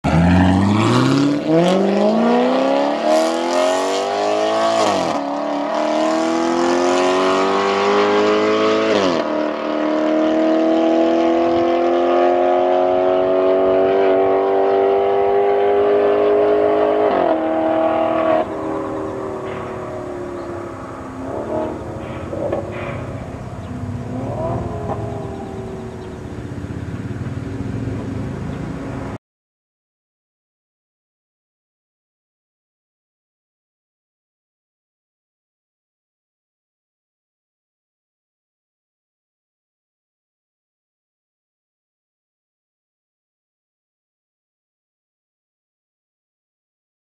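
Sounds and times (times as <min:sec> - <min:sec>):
car engine starting and idling: 0:18.5 - 0:29.2.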